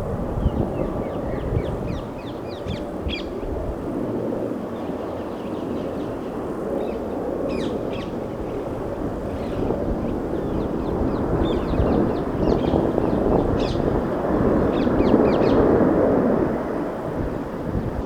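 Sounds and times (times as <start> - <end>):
low rumble of outdoor noise: 0.0 - 3.9.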